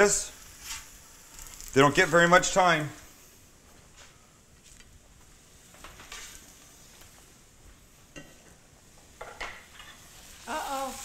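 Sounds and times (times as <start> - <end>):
food sizzling in a pan: 0.0 - 3.6, 4.9 - 11.0
metal utensils clicking and scraping: 5.9 - 6.5.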